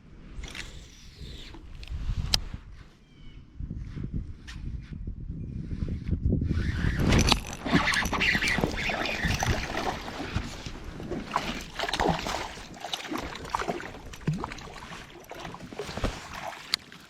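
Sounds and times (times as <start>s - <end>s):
wind and water noise: 0.0s - 17.0s
gear knocks and rustles: 7.0s - 17.0s.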